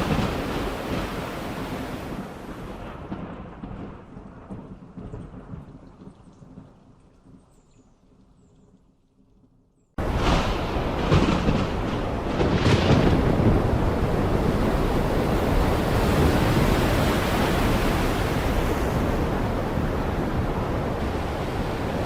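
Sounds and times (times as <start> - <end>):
heavy rain pouring: 0.0 - 3.3, 10.0 - 22.0.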